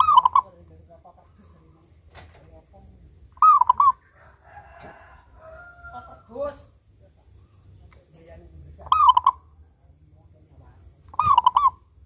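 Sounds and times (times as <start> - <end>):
dove cooing: 0.0 - 0.6, 3.4 - 5.3, 8.8 - 9.5, 11.1 - 11.9
rooster crowing: 4.0 - 6.6.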